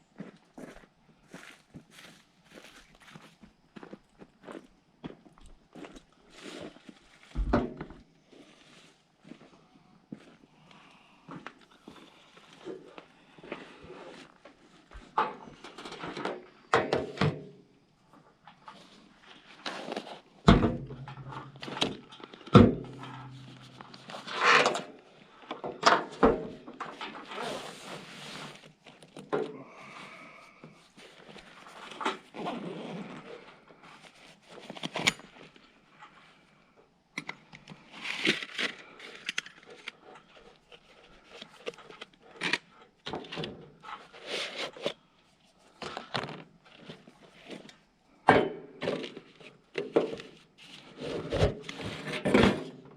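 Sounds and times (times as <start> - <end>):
camp gear knocking and scraping: 6.6 - 8.2, 18.4 - 29.8, 45.7 - 52.9.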